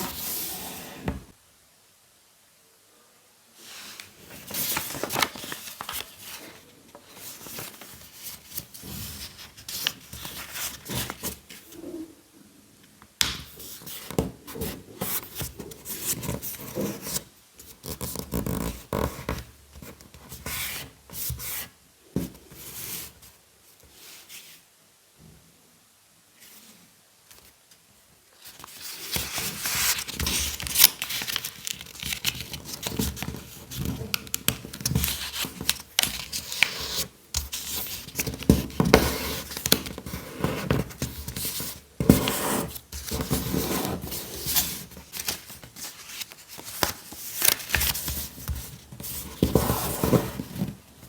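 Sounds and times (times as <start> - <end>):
paper rustling and folding: 3.6 - 11.8, 28.4 - 51.0.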